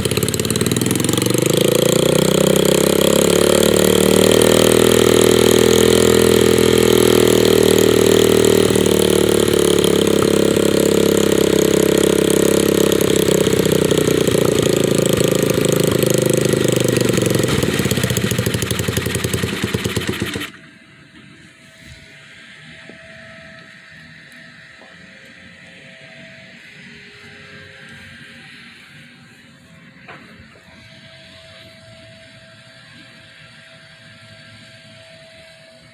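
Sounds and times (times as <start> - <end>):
dirt bike engine running: 0.0 - 20.6.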